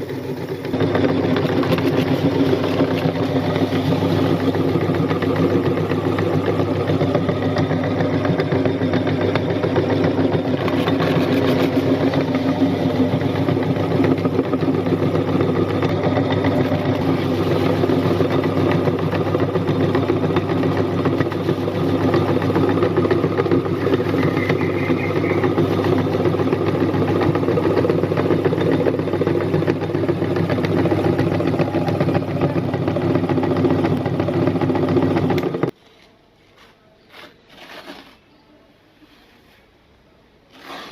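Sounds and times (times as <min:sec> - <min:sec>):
electric meat grinder motor humming: 0:00.0 - 0:35.7.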